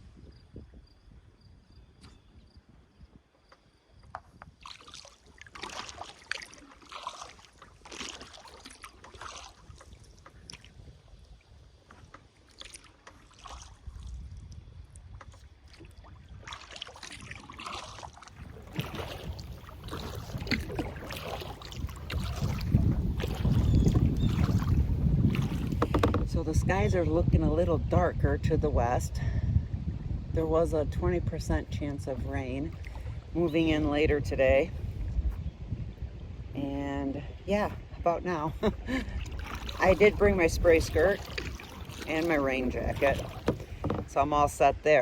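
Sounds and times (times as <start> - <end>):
wind on microphone: 0.0 - 3.3, 9.6 - 12.1, 13.6 - 45.0
paddle splashing in water: 3.6 - 26.8, 31.9 - 35.4, 37.5 - 45.0.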